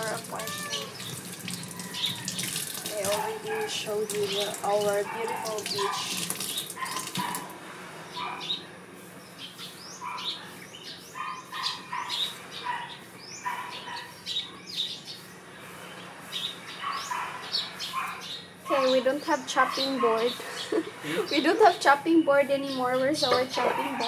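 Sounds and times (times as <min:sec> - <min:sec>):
kitchen tap running: 0:00.0 - 0:07.5
small birds chirping: 0:00.0 - 0:24.0.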